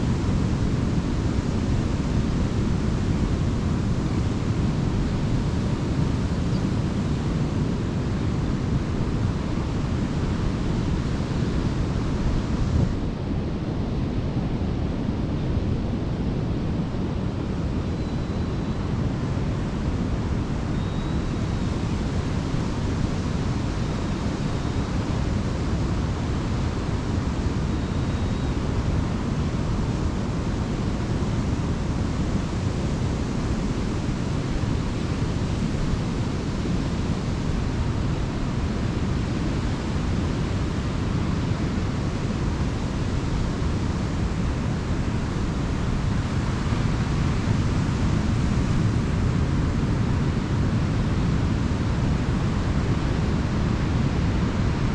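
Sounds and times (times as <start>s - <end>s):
waves breaking on a beach: 18.9s - 54.9s.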